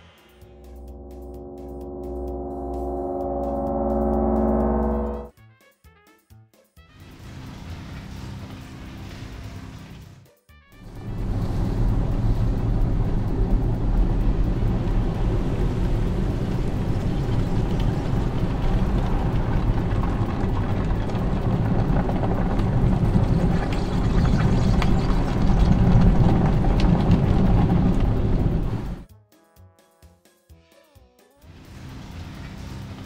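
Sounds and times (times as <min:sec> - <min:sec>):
car wash scrubber rumbling: 0:10.9 - 0:29.0.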